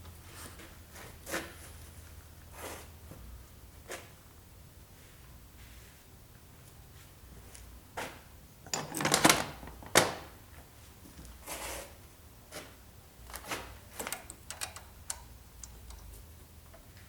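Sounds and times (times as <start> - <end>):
timing chain clicks and clatters: 14.0 - 16.1.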